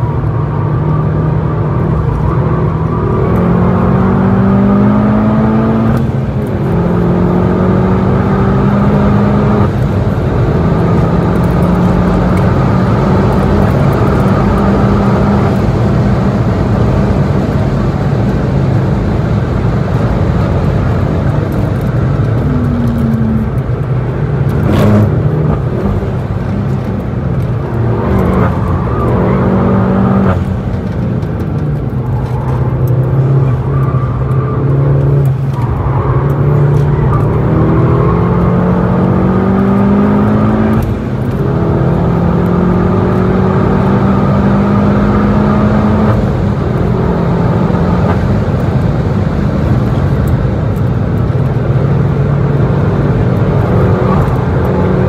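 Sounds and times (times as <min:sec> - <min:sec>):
car engine accelerating: 0:00.0 - 0:55.0
wind and tyre noise: 0:00.0 - 0:55.0.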